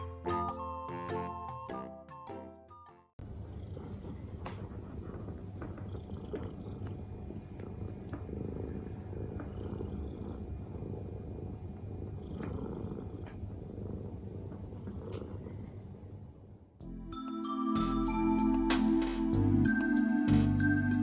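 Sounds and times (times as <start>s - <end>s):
cat purring: 3.2s - 16.7s.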